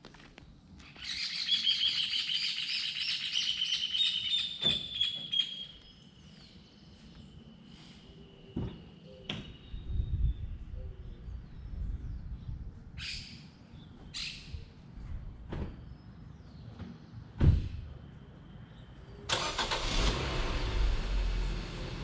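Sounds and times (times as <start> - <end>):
songbird chirping: 0.8 - 15.0.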